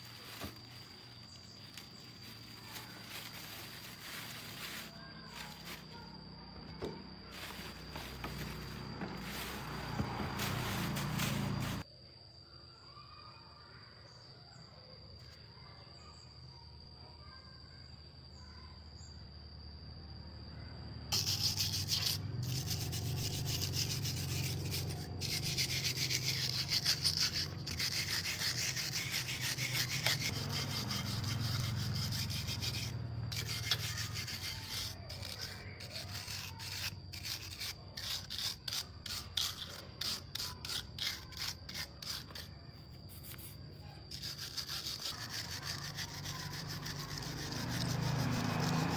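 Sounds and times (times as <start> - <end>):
abrasive rubbing: 6.8 - 11.8.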